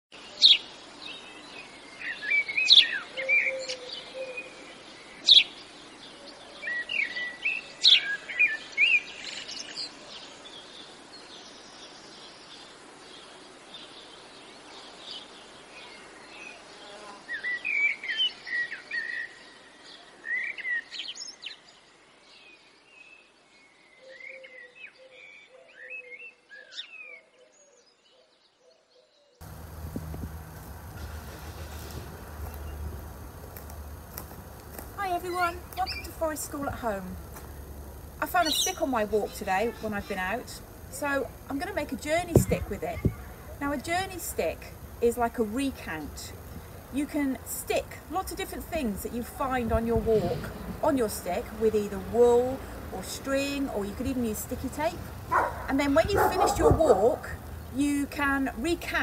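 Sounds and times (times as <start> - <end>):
birds chirping and calling: 29.4 - 44.1.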